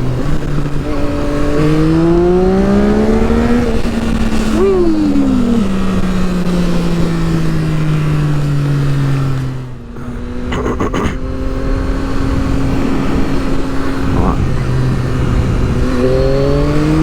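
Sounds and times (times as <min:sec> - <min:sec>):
motorcycle engine running: 0:00.0 - 0:17.0
wind rush: 0:11.2 - 0:17.0.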